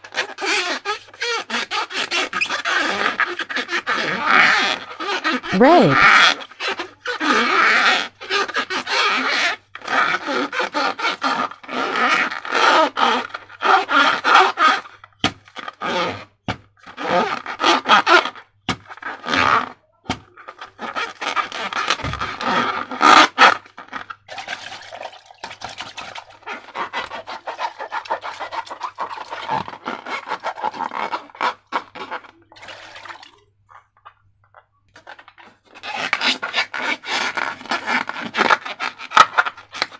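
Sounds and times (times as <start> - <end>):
slime and balloons squishing: 5.5 - 6.2.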